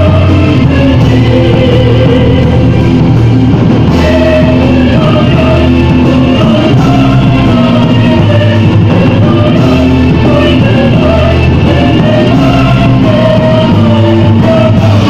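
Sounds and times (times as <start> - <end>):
metal band playing: 0.0 - 15.0.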